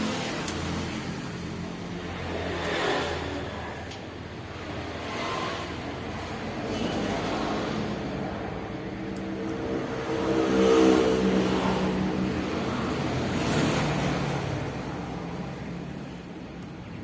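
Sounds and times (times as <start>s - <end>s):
motorcycle engine revving: 4.5s - 16.0s.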